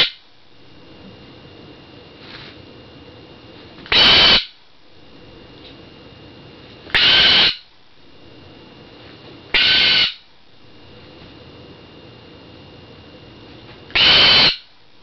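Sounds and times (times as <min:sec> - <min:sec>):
pet bird screaming: 0:00.0 - 0:00.2, 0:03.9 - 0:04.6, 0:06.9 - 0:07.7, 0:09.5 - 0:10.3, 0:13.9 - 0:14.7.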